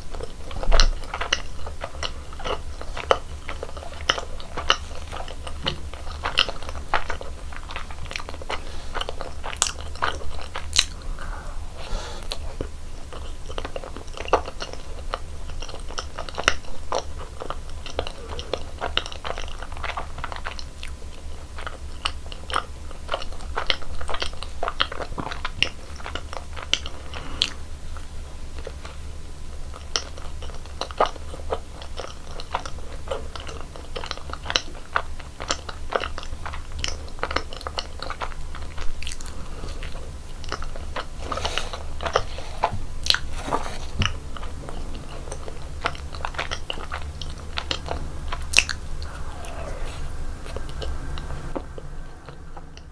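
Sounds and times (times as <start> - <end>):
chewing and biting donuts: 0.0 - 52.9
steady low hum: 0.0 - 52.9.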